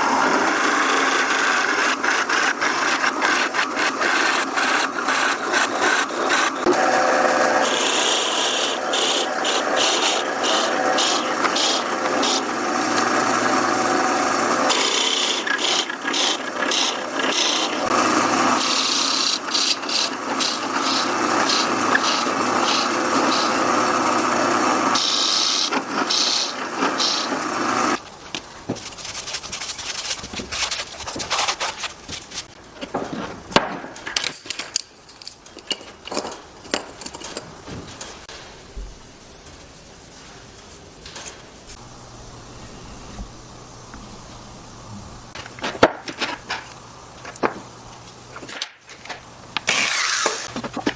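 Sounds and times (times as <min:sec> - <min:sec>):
power tool cutting wood: 0:00.0 - 0:28.0, 0:49.6 - 0:50.7
wooden pieces knocking: 0:48.4 - 0:50.9.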